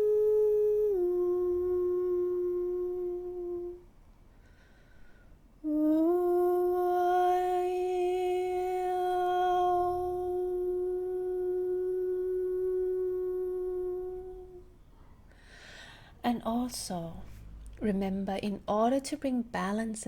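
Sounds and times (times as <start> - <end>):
woman singing long held notes: 0.0 - 3.9, 5.6 - 14.8.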